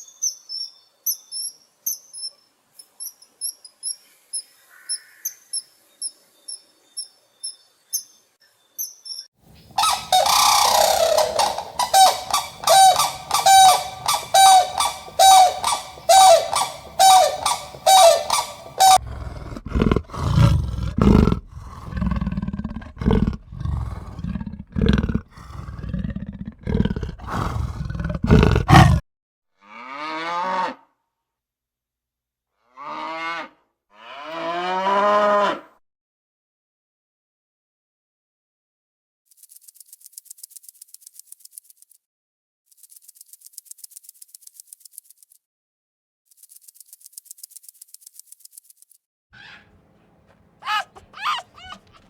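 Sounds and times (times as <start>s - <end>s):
high insect chirps: 8.8s - 19.0s
loud repeated animal calls: 9.8s - 29.0s, 49.4s - 49.8s, 50.6s - 52.0s
deep roaring grunts: 19.0s - 29.0s.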